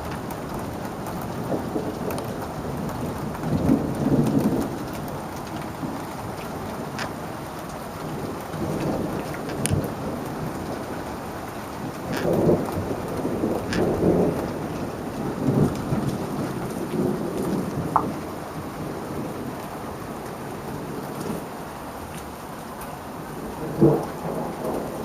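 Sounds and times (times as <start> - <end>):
raindrop ticks: 0.0 - 18.4
steady rain: 0.0 - 25.0
rolling thunder: 8.0 - 19.9, 23.4 - 25.0.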